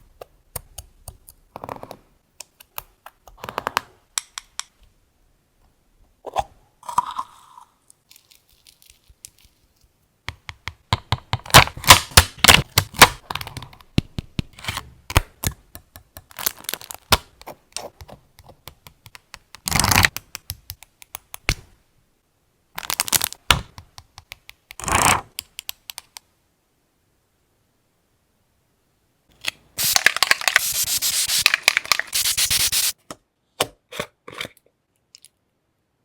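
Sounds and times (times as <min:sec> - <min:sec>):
paper rustling bursts: 0:29.8 - 0:32.9
paper and tools clicking: 0:29.8 - 0:33.0.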